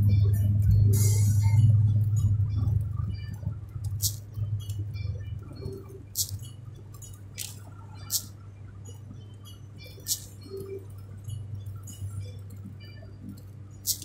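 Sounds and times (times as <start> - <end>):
car cabin road hum: 0.0 - 8.4.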